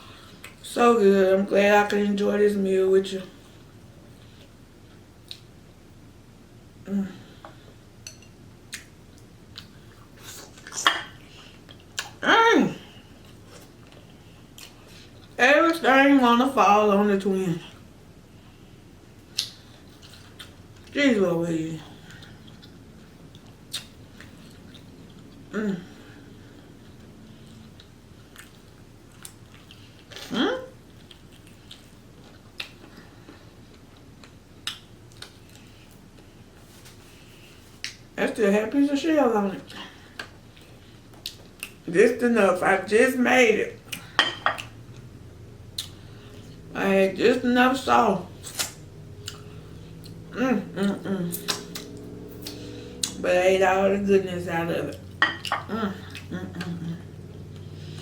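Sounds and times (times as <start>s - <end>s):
chewing clicks and smacks: 22.2s - 25.3s, 33.9s - 35.7s
wet mouth clicks: 48.4s - 49.5s, 51.3s - 53.2s
close chewing: 48.4s - 50.2s
falling vocal hum: 49.4s - 54.0s, 55.6s - 58.0s.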